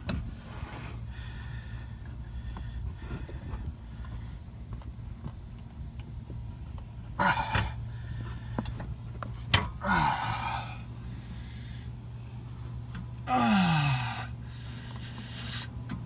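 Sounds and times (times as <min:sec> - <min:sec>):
low hum: 0:00.0 - 0:16.0
person gasping: 0:09.8 - 0:10.9, 0:13.3 - 0:14.7.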